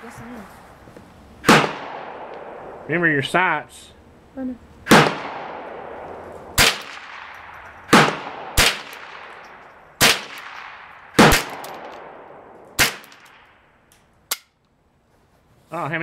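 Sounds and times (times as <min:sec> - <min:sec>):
gunshots with long echo: 0:01.4 - 0:02.9, 0:04.8 - 0:13.7.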